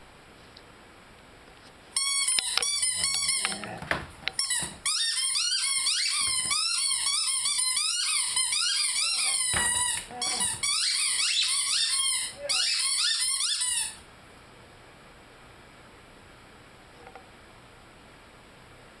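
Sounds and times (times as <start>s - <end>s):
rubber squeaky toy squeaking: 2.0s - 14.0s.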